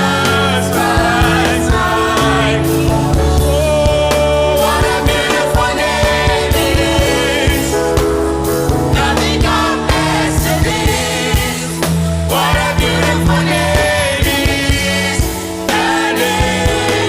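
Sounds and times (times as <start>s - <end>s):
person singing: 0.0s - 7.8s
band playing: 0.0s - 17.0s
bass and drums: 0.0s - 17.0s.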